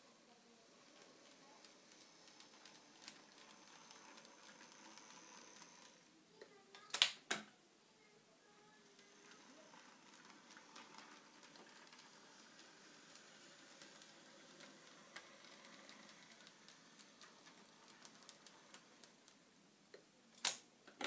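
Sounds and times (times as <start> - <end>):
model train motor whirring: 0.0 - 6.1, 8.6 - 19.4
wheels ticking on rail joints: 9.0 - 19.4.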